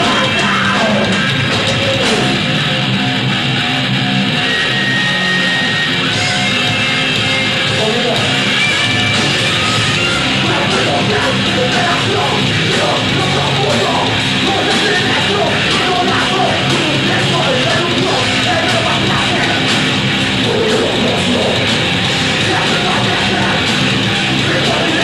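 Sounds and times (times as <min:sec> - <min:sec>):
shouted vocals: 0:00.0 - 0:02.5, 0:07.8 - 0:25.0
drums: 0:00.0 - 0:25.0
heavy metal band playing: 0:00.0 - 0:25.0.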